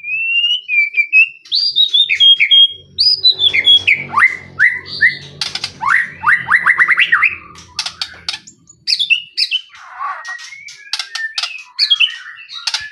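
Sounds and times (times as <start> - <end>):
low hum: 2.0 - 9.3
songbird whistling and clicking: 5.4 - 12.9.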